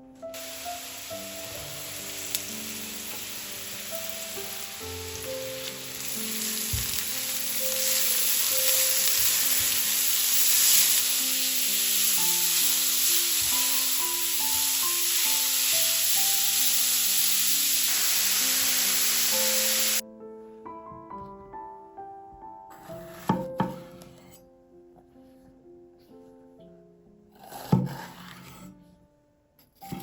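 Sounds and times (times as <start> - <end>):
soft background music: 0.0 - 30.0
food sizzling in hot oil: 0.3 - 20.0.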